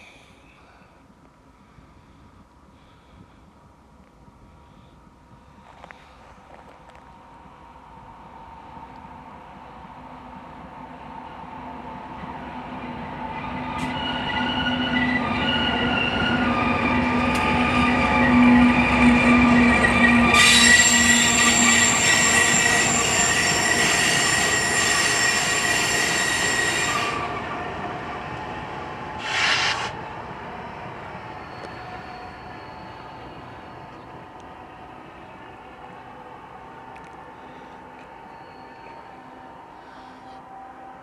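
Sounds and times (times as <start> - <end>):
train passing: 7.0 - 41.0
train wheels squealing on rails: 12.7 - 27.8, 29.0 - 34.3, 37.0 - 41.0.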